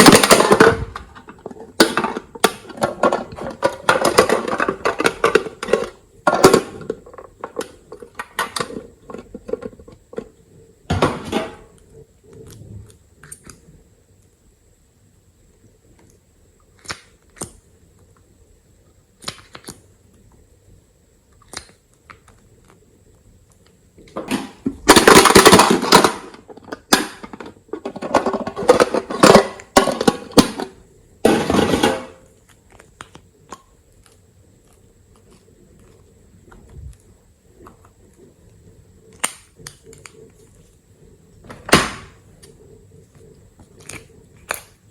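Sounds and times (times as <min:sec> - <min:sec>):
slime clicking and popping: 0:16.7 - 0:17.6, 0:19.2 - 0:19.8, 0:39.1 - 0:40.2.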